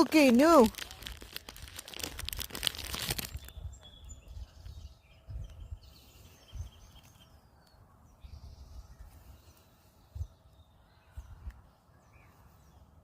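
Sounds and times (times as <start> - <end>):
wrapper crinkling: 0.0 - 3.5.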